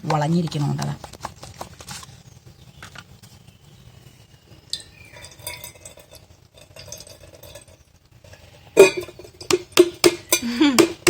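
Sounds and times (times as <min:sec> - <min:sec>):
coconut water draining: 0:04.7 - 0:11.0
knife and vessel knocking: 0:08.8 - 0:11.0.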